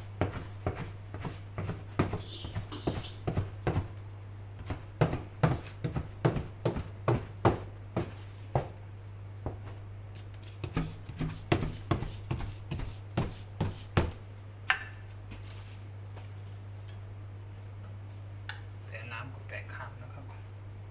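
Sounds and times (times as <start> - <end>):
knife chopping on cutting board: 0.1 - 4.0, 4.6 - 8.8, 10.6 - 14.2.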